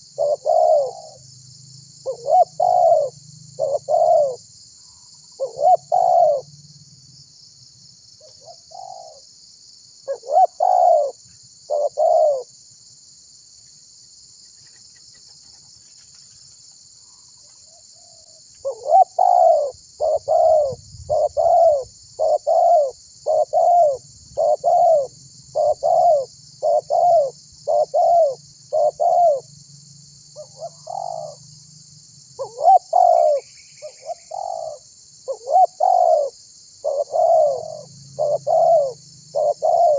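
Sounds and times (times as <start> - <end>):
dove cooing: 0.0 - 1.2, 2.0 - 4.4, 5.4 - 6.5, 8.2 - 9.2, 10.0 - 12.5, 18.0 - 29.5, 30.4 - 31.4, 32.4 - 39.9.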